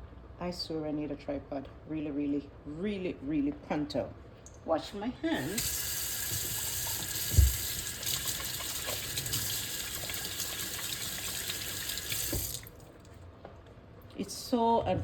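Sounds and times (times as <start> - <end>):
tap water running into sink: 5.4 - 12.8
thump: 7.3 - 7.6.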